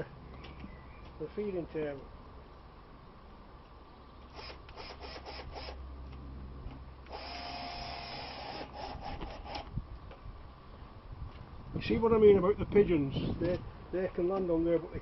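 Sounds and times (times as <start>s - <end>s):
drill-driver running: 4.3s - 5.8s, 7.1s - 9.6s.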